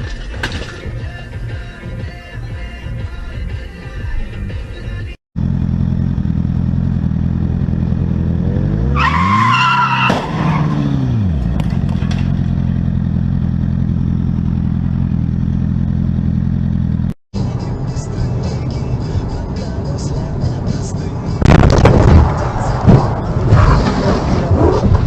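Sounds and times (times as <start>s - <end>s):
engine revving: 5.4s - 9.5s
car driving drone: 5.4s - 25.0s
tyre squeal: 8.9s - 11.0s.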